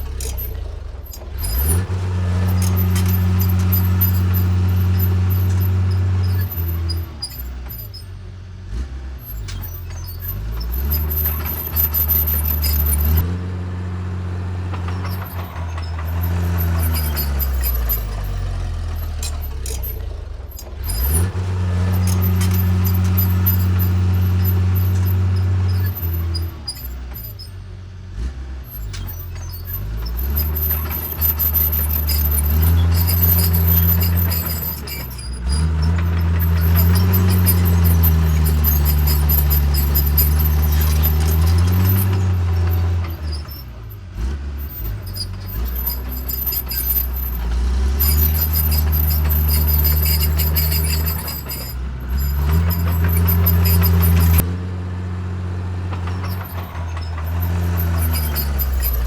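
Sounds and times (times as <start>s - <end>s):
short metallic clicks: 0.0s - 8.0s, 14.7s - 27.5s
bulldozer diesel engine: 0.0s - 59.0s.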